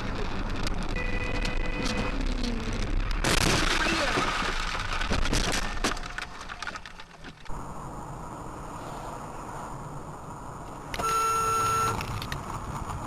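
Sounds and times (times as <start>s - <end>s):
parts cracking and breaking: 0.0s - 7.5s.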